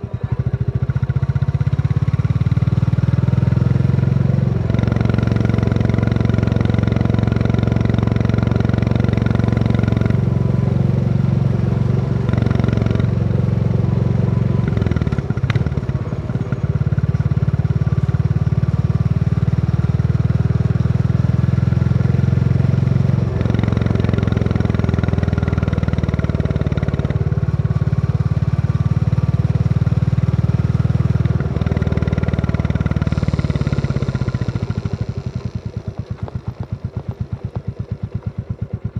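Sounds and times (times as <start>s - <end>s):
motorcycle engine thumping: 30.9s - 38.9s.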